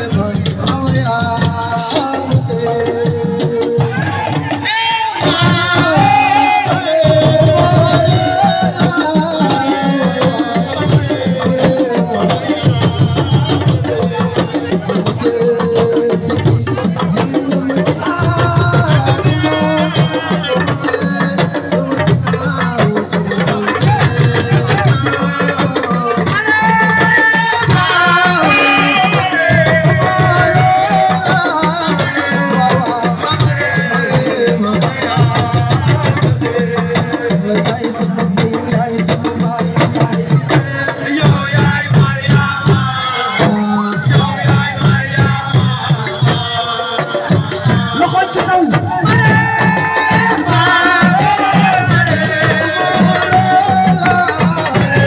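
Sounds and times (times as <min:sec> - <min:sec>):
hand drum rhythm: 0:00.0 - 0:55.0.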